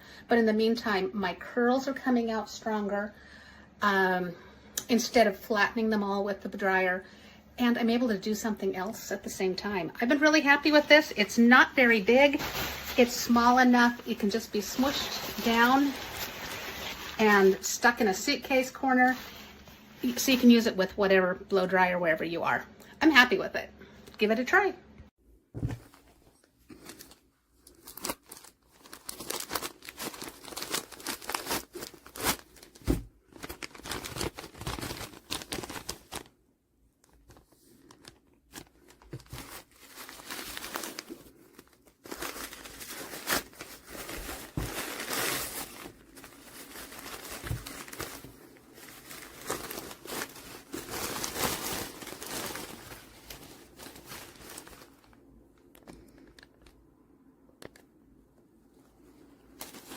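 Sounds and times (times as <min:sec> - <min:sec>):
material crinkling and rustling: 0:09.0 - 0:20.7, 0:25.5 - 0:56.9, 0:59.5 - 0:59.9.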